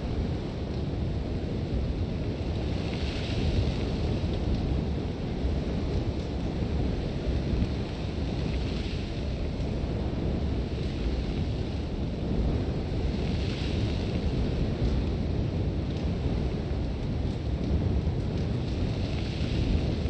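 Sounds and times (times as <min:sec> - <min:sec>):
hiss of wind-blown sand: 0:00.0 - 0:20.0
strong wind rumbling: 0:00.0 - 0:20.0.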